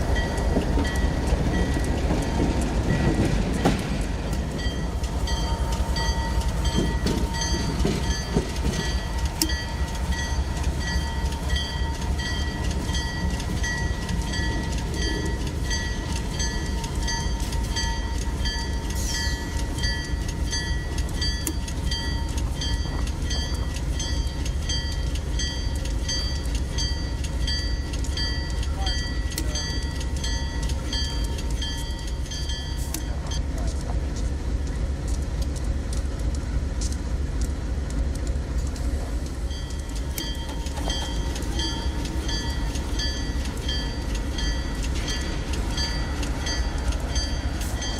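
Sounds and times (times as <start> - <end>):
freight train rumbling: 0.0 - 47.9
wheels clacking over rail joints: 0.0 - 47.9.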